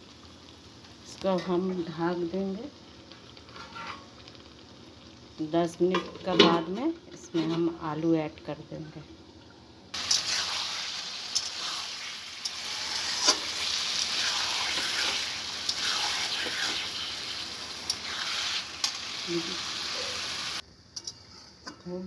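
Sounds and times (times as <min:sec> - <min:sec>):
food sizzling in a wok: 0:00.0 - 0:22.0
metal spatula scraping pan: 0:03.5 - 0:04.1, 0:07.3 - 0:07.8.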